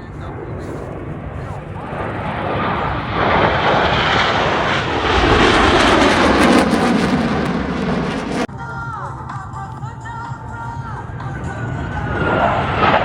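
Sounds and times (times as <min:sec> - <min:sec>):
airplane engine roar passing: 0:00.0 - 0:08.5, 0:10.3 - 0:13.0.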